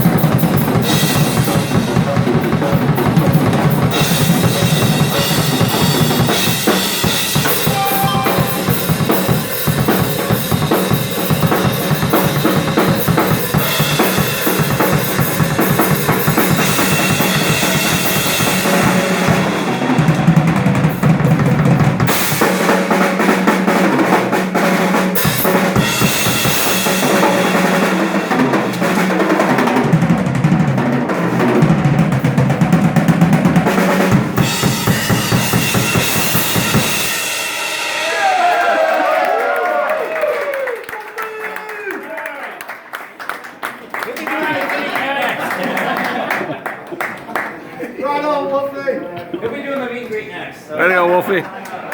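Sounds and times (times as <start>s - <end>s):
rock drum kit playing: 0.0s - 38.8s
crashing cymbals: 5.1s - 11.5s.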